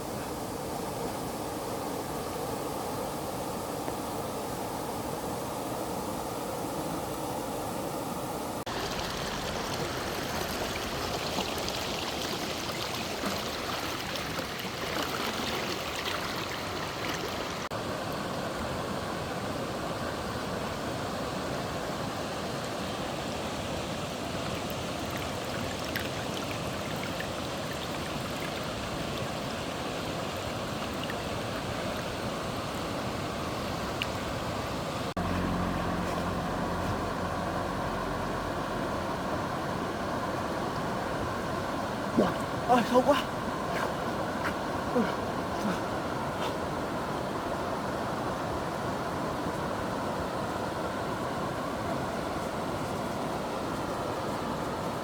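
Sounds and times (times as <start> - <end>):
stream water rushing: 0.0 - 55.0
low steady hum: 33.2 - 53.6.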